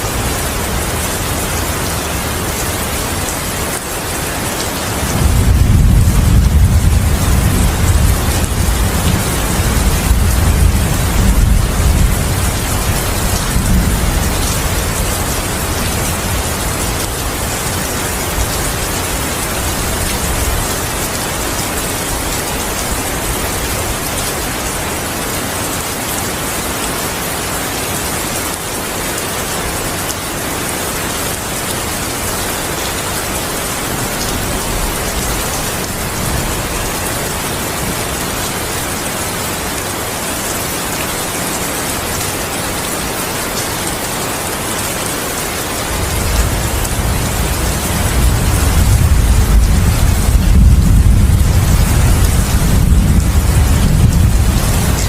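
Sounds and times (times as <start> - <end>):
rain falling: 0.0 - 55.0
low rumble of thunder: 5.1 - 20.7, 46.0 - 55.0.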